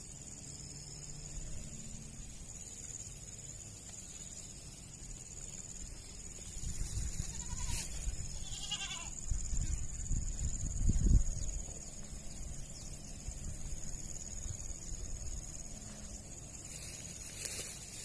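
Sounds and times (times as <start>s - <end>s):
high-pitched insect drone: 0.0s - 18.0s
goat bleating: 7.2s - 9.2s.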